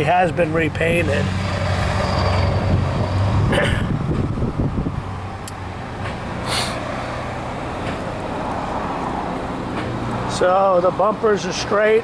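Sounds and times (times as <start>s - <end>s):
motor vehicles rumbling: 0.0s - 12.0s
brief hissing: 6.4s - 6.9s.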